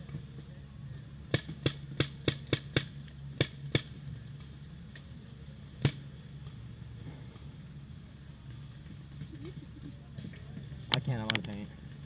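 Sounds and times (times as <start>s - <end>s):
paintball marker shots: 1.3s - 4.0s.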